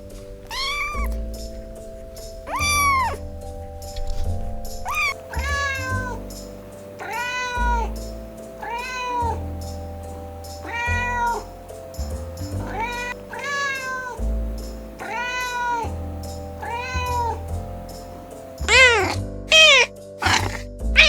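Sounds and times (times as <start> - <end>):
background music with bass: 0.0 - 21.0
cat meowing: 0.2 - 3.3, 3.9 - 6.3, 7.0 - 8.0, 8.6 - 9.5, 10.6 - 11.6, 12.6 - 14.2, 15.0 - 16.0, 16.6 - 17.5, 18.6 - 21.0.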